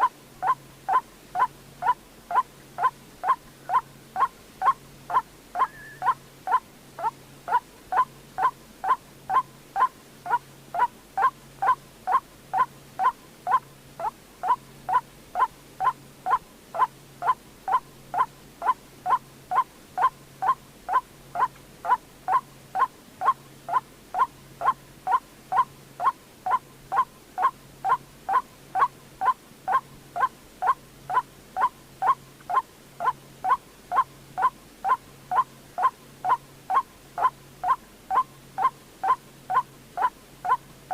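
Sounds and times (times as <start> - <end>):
bird calling short sharp notes: 5.6 - 6.2.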